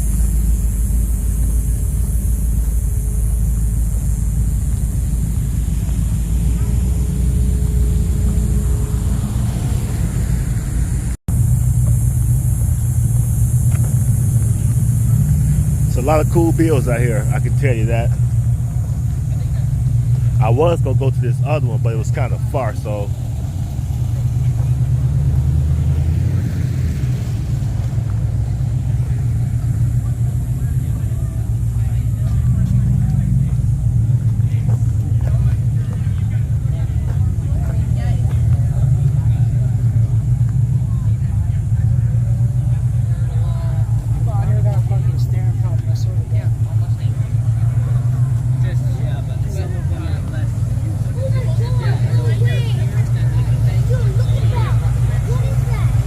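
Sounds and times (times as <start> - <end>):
high hiss: 0.0 - 34.4
car engine running: 0.0 - 56.0
low vehicle rumble: 0.0 - 56.0.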